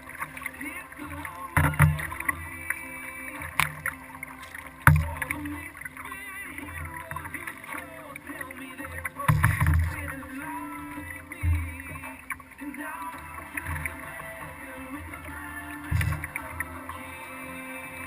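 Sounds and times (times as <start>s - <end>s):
paddling water noise: 0.0s - 18.0s
knocks and thumps on boat: 1.1s - 2.5s, 3.4s - 5.6s, 9.1s - 12.3s, 15.9s - 16.8s.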